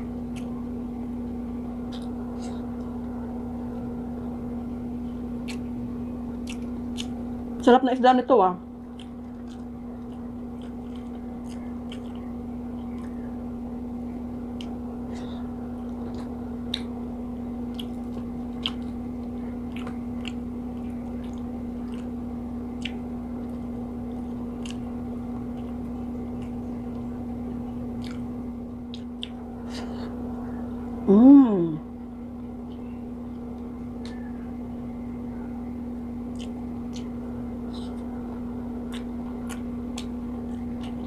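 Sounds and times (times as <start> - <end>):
steady low hum: 0.0 - 41.0
person chewing: 0.1 - 0.7, 1.8 - 3.2, 5.1 - 7.4, 8.8 - 13.4, 14.4 - 17.0, 17.6 - 30.2, 36.2 - 41.0.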